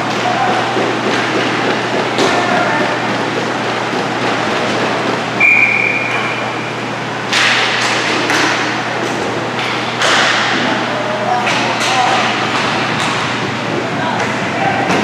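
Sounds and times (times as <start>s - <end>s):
referee's whistle: 5.4s - 6.6s.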